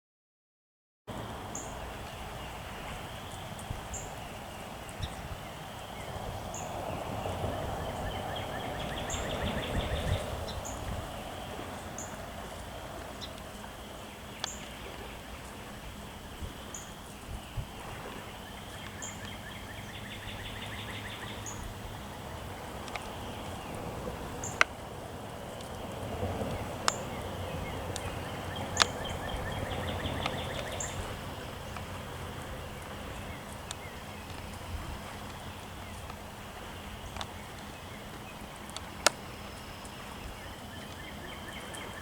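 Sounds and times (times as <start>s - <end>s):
outdoor background noise: 1.1s - 42.0s
small birds chirping: 1.2s - 42.0s.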